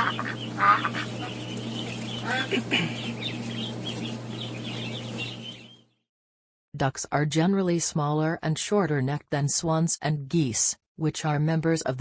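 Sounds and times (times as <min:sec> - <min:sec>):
flamingos honking: 0:00.0 - 0:05.4
steady low hum: 0:00.0 - 0:05.8.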